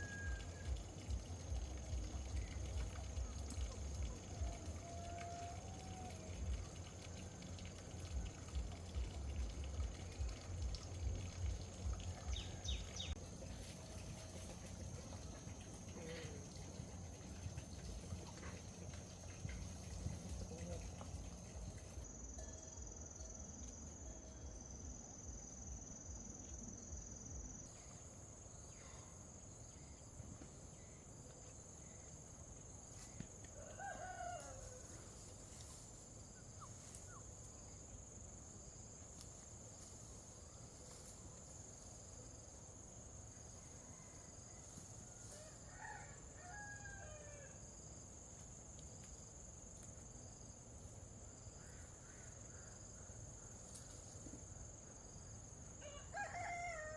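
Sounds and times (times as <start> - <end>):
rooster crowing faintly: 0.0 - 1.0, 3.7 - 6.8, 33.5 - 35.3, 43.6 - 47.7, 55.8 - 56.9
insects droning: 0.0 - 56.9.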